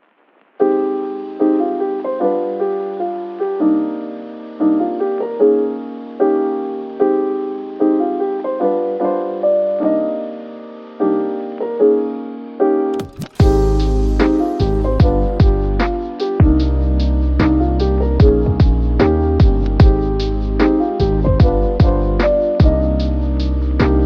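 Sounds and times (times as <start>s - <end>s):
soft piano chords: 0.6s - 24.0s
beat with deep bass: 13.0s - 24.0s.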